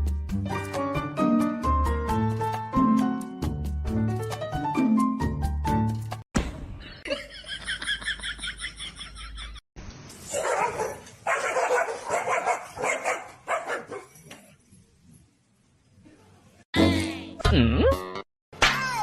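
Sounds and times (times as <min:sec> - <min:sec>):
dog barking: 0:10.3 - 0:14.1
dog yipping: 0:10.3 - 0:14.1.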